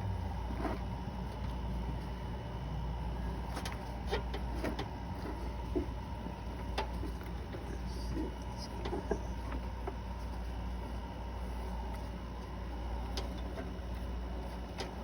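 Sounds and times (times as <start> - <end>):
steady low hum: 0.0 - 15.0
light clicks of engine parts: 3.4 - 10.5, 11.8 - 15.0.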